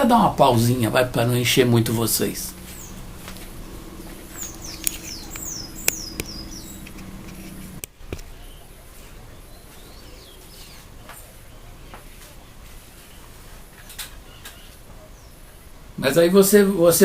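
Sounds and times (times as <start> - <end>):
steady low hum: 0.0 - 16.0
bird chirping: 0.4 - 15.7
sharp clicks: 4.4 - 8.3.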